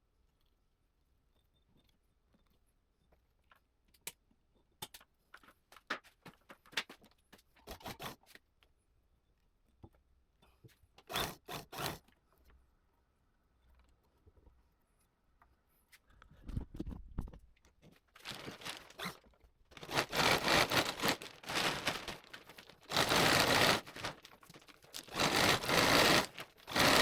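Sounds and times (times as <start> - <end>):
belt-driven power tool rasping: 11.0 - 12.1, 18.8 - 19.2, 19.8 - 27.0.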